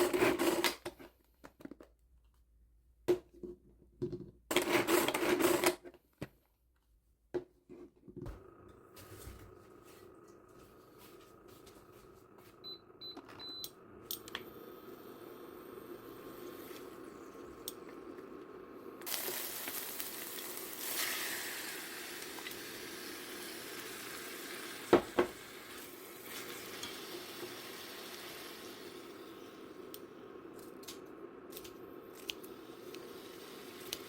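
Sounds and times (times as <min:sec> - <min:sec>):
steady low hum: 0:08.2 - 0:19.1
food sizzling in a frying pan: 0:18.9 - 0:29.9, 0:32.6 - 0:34.0.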